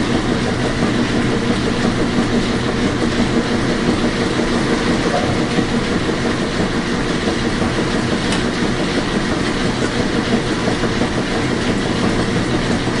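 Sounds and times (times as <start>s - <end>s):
washing machine running: 0.0s - 13.0s.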